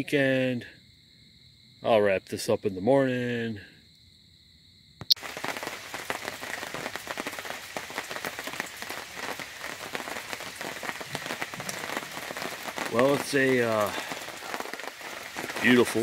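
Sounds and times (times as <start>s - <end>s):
rain pattering on awning: 5.1s - 16.0s.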